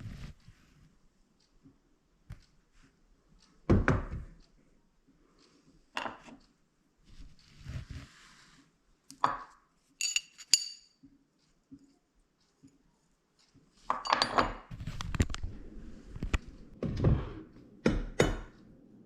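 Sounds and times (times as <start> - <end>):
metal kitchen items knocking: 9.3 - 10.9.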